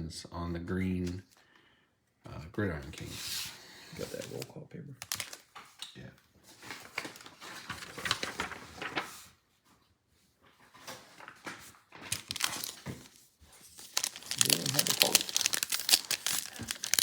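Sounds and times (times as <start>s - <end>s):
cards and foil wrapper crinkling: 4.0s - 5.7s, 6.7s - 9.1s, 11.9s - 17.0s.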